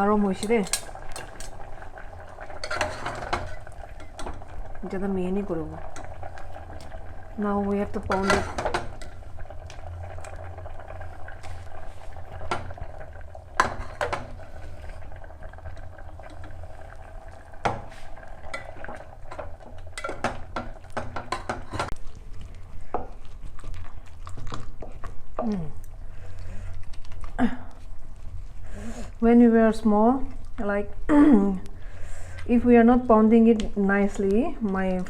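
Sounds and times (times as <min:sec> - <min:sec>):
pot bubbling on stove: 0:00.0 - 0:35.0
kitchen utensils clinking: 0:00.3 - 0:01.7, 0:02.6 - 0:04.5, 0:07.9 - 0:09.2, 0:18.5 - 0:22.0.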